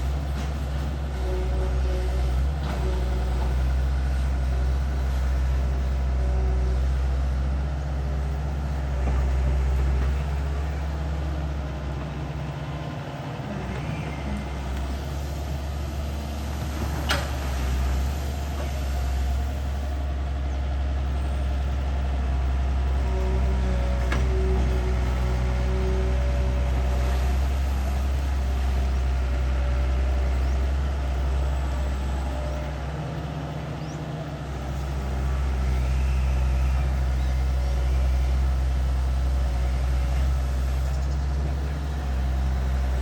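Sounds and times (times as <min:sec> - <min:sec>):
excavator engine and hydraulics: 0:00.0 - 0:43.0.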